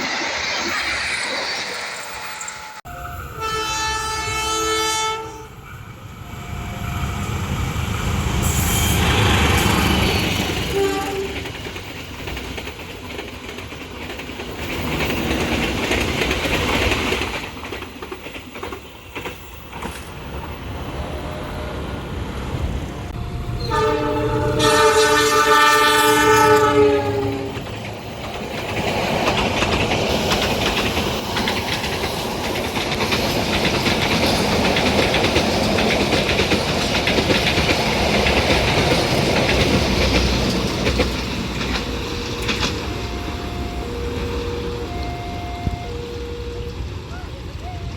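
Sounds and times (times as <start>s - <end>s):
train wheels rumbling on rails: 2.8s - 47.9s
train horn: 2.9s - 7.1s, 8.4s - 9.9s, 10.6s - 11.6s, 23.1s - 27.6s, 41.6s - 47.9s.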